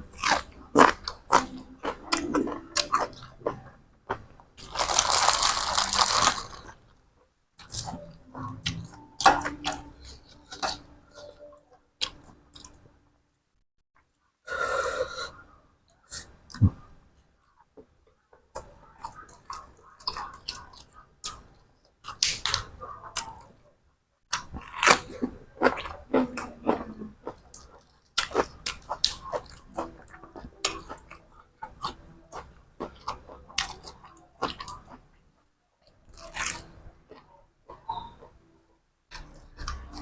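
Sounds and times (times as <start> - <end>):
person chewing crunchy food: 0.0 - 6.8, 7.6 - 12.8, 24.3 - 35.2, 35.8 - 38.4, 39.1 - 40.0.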